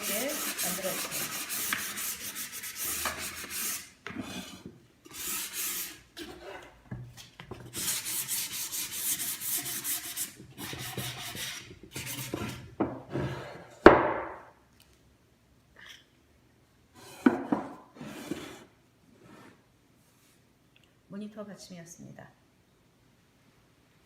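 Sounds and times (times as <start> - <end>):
sandpaper rubbing on wood: 0.0 - 3.9, 5.1 - 6.0, 7.8 - 12.6.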